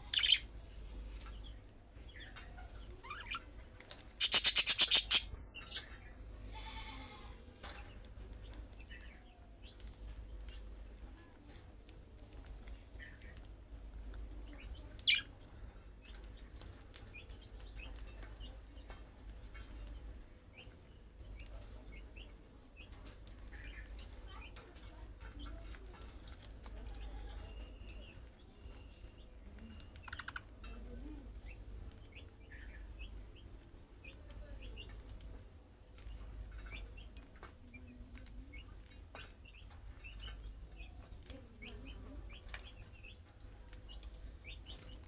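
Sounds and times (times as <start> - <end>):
budgerigars chirping: 0.0 - 0.4, 4.2 - 5.3.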